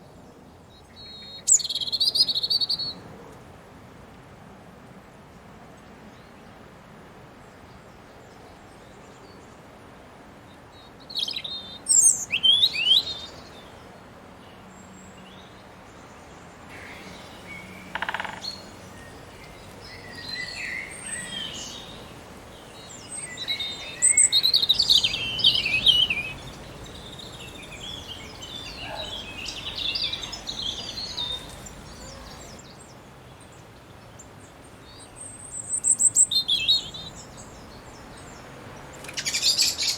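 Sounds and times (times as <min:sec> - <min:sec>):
songbirds singing: 0:00.0 - 0:03.1, 0:07.4 - 0:39.9
birds twittering: 0:14.5 - 0:39.9.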